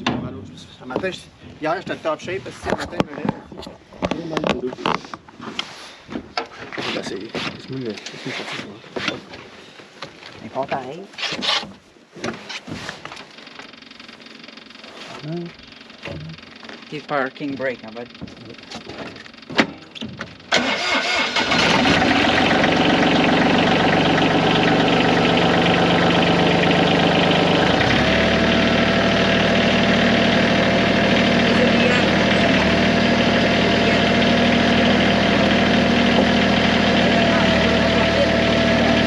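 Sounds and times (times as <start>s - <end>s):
tractor engine starting and idling: 20.3s - 39.0s
steady whine: 21.8s - 39.0s.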